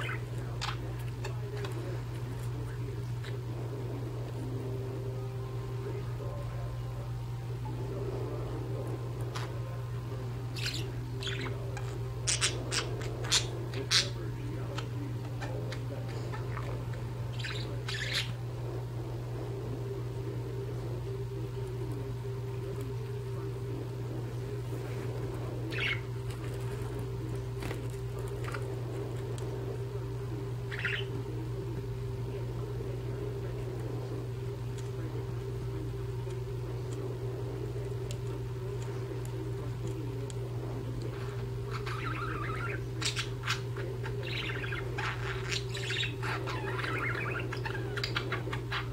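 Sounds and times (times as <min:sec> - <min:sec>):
budgerigars chattering: 0:00.0 - 0:03.6, 0:10.4 - 0:18.5, 0:25.3 - 0:29.6, 0:30.6 - 0:31.4, 0:41.0 - 0:48.9
steady low hum: 0:00.0 - 0:48.9.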